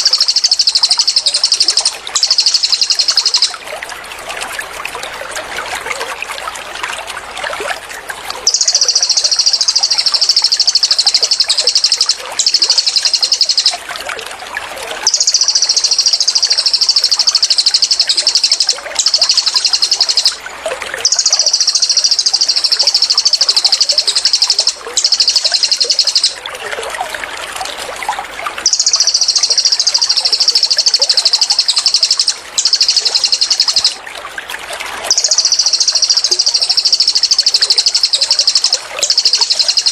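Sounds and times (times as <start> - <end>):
bird singing buzzing trills: 0.0 - 3.6
trickle of running water: 0.0 - 39.9.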